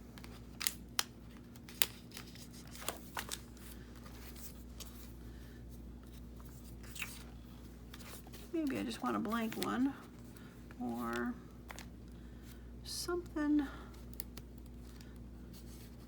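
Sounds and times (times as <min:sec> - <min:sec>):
soft paper rustling: 0:00.1 - 0:12.6, 0:13.2 - 0:16.0.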